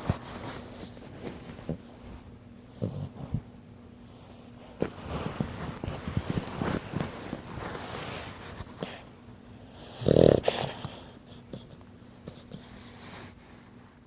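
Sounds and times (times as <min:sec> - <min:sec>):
puppy snoring: 0:01.6 - 0:07.1, 0:08.8 - 0:12.9.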